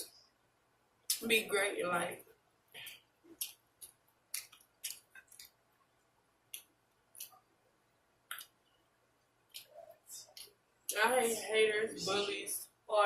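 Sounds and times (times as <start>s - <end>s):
person chewing with mouth smacks: 2.8s - 5.6s, 8.3s - 8.6s.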